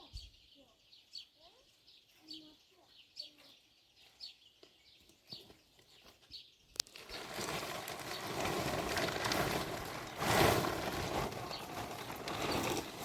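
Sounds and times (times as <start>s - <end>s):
small bird chirping: 0.0s - 7.4s.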